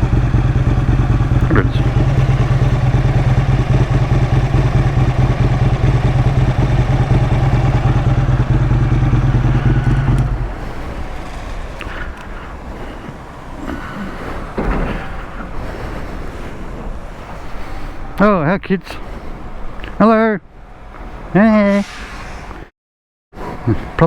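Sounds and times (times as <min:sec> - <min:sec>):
motorcycle engine idling: 0:00.0 - 0:17.3
outdoor background: 0:00.0 - 0:22.7, 0:23.4 - 0:24.0.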